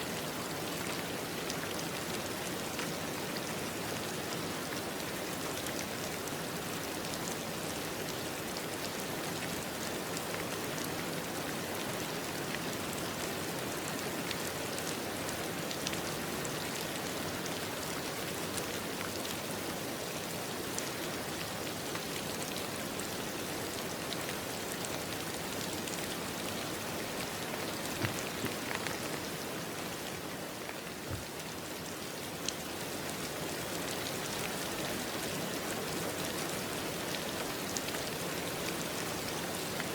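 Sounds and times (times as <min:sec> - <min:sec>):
rain falling: 0:00.0 - 0:39.9
raindrops ticking: 0:26.8 - 0:29.5.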